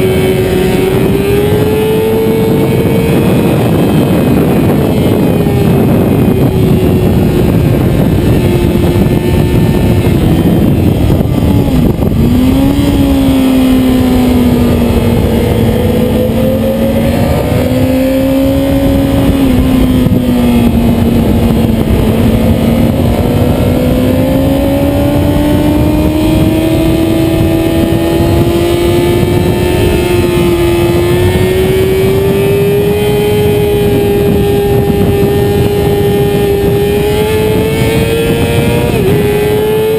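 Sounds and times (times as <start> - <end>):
motorcycle engine running hard: 0.0 - 39.9.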